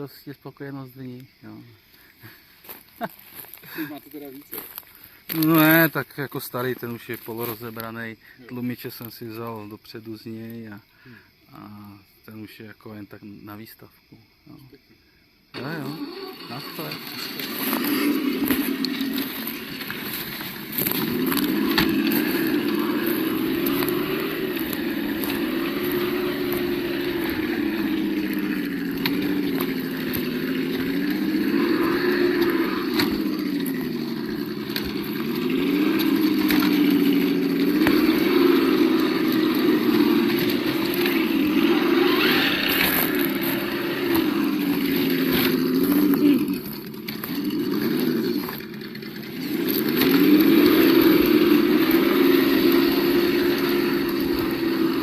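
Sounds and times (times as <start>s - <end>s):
simulated engine through small speaker: 15.6s - 55.0s.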